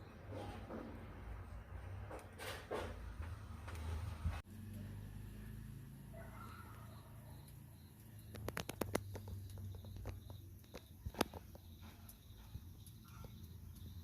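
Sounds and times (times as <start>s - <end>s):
sharp clicks and taps: 8.3s - 12.2s.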